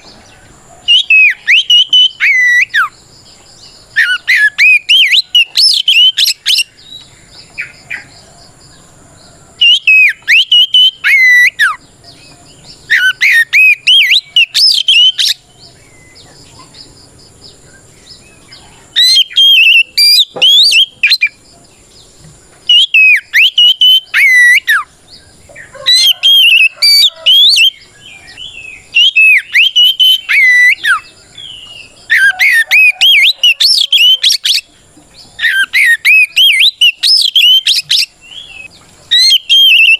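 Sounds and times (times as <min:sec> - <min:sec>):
magpie-robin singing whistled phrases: 0:00.9 - 0:02.9, 0:03.9 - 0:08.1, 0:09.6 - 0:16.3, 0:19.0 - 0:21.4, 0:22.7 - 0:24.9, 0:25.9 - 0:34.7, 0:35.4 - 0:39.9.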